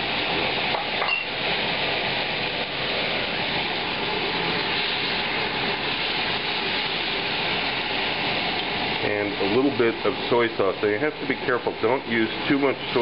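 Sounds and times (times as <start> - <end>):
shrimp sizzling in oil: 0.0 - 13.0.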